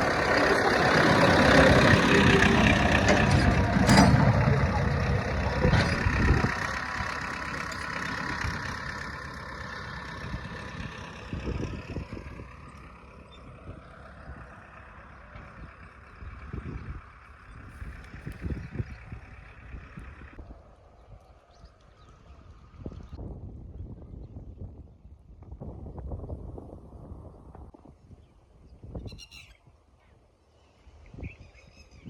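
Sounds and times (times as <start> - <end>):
tractor engine running: 0.0 - 20.4.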